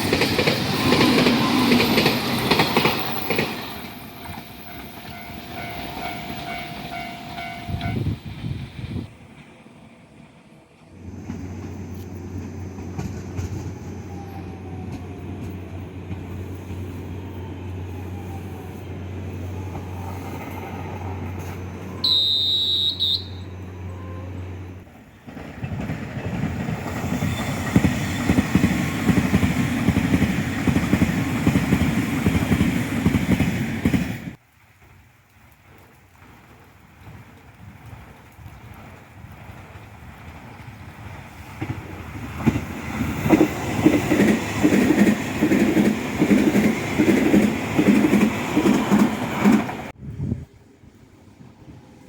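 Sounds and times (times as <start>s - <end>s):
train passing with clatter: 0.0s - 52.0s
high-pitched train horn: 4.0s - 8.3s, 21.8s - 24.5s.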